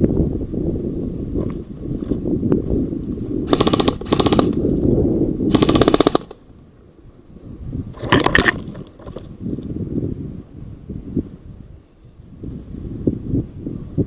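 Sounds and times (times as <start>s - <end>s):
airsoft gun bursts: 3.5s - 4.6s, 5.5s - 6.4s.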